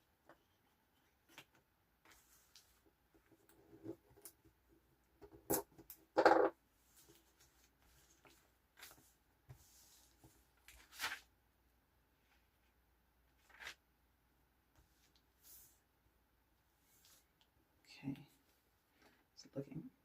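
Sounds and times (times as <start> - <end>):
paper and tape rustling: 9.8 - 11.3.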